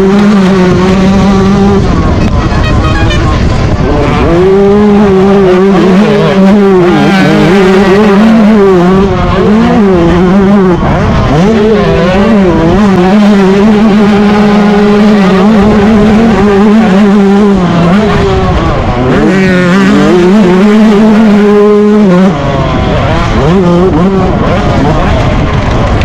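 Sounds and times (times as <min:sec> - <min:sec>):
two-stroke engine revving hard: 0:00.0 - 0:26.0.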